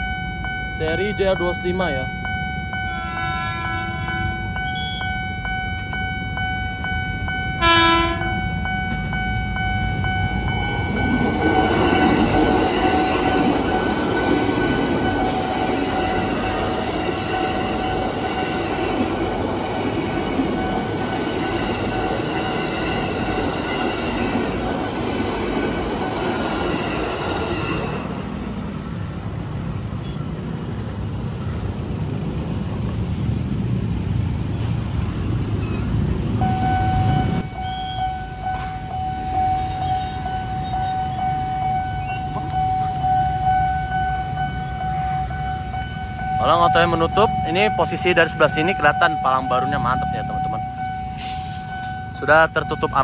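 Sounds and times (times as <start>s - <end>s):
crossing alarm steady tone: 0.0s - 32.1s, 35.2s - 53.0s
train horn blast: 2.9s - 5.1s, 7.6s - 8.4s
train wheels rumbling on rail: 9.8s - 41.1s.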